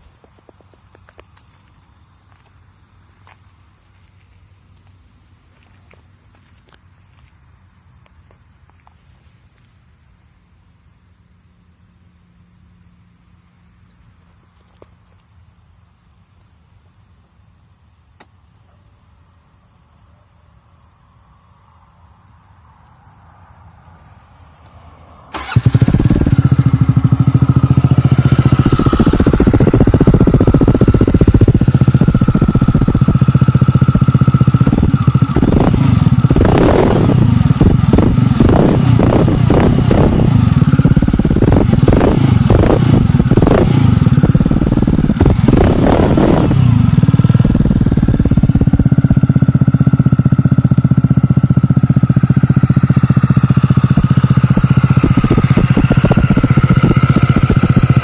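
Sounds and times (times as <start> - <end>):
motorcycle engine idling and revving: 0.0 - 9.0, 9.6 - 58.0
supercharger whine: 0.0 - 58.0
motorcycle engine starting: 23.9 - 58.0.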